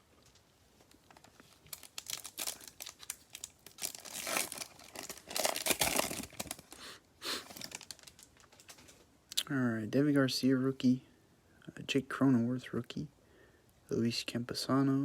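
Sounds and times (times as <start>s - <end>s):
card pack wrapper tearing: 1.7s - 6.8s, 7.4s - 8.8s.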